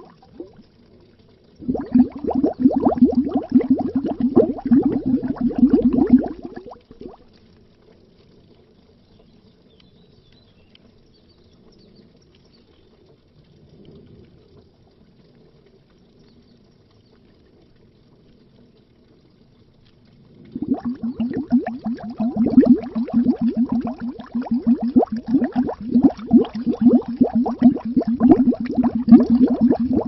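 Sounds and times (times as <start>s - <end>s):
underwater air bubbles: 0.0s - 7.6s, 20.1s - 30.0s.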